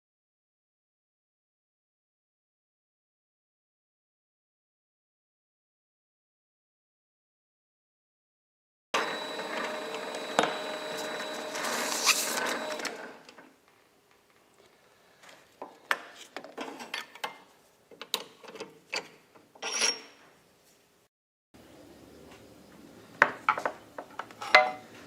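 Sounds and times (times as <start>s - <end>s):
scraping and rubbing machine parts: 9.2s - 13.1s.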